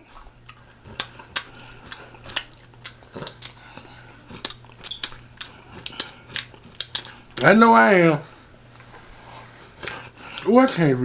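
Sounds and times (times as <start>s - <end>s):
person chewing with lip smacks: 0.0s - 7.5s, 9.7s - 10.5s.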